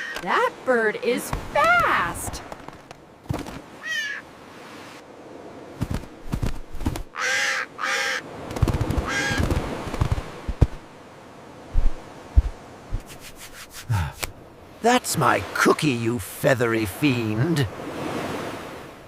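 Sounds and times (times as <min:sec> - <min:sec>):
seagull squawks: 0:03.8 - 0:04.2, 0:07.1 - 0:08.2, 0:09.0 - 0:09.5.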